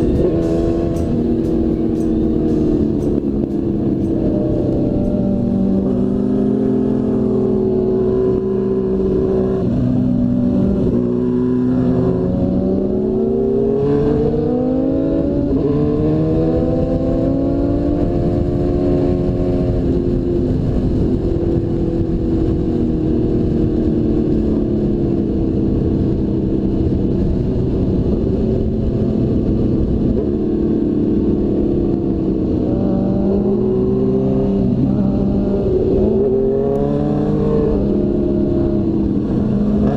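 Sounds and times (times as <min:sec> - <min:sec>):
motorcycle engine revving: 0:00.0 - 0:39.9
wind noise rumbling: 0:00.0 - 0:39.9.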